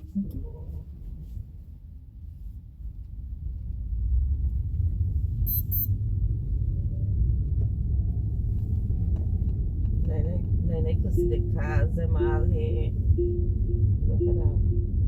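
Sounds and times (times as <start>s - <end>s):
road and wind rumble in car: 0.0s - 15.0s
high electronic chime beeps: 5.5s - 5.9s, 11.2s - 11.6s, 13.2s - 15.0s.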